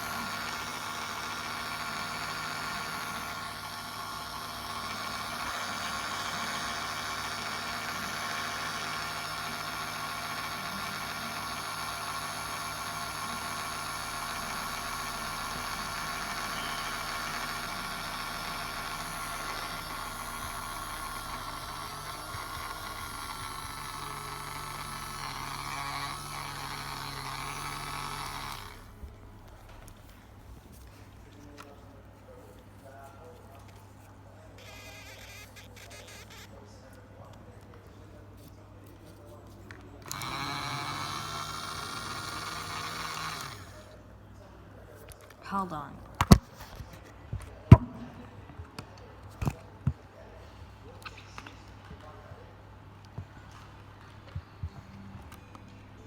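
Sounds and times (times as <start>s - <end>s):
toy motor whirring hum: 0.0s - 29.1s, 34.6s - 36.6s, 40.0s - 43.9s.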